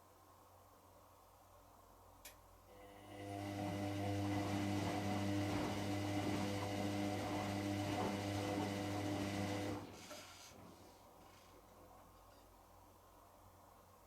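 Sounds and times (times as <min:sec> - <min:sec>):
washing machine running: 0:02.8 - 0:10.1.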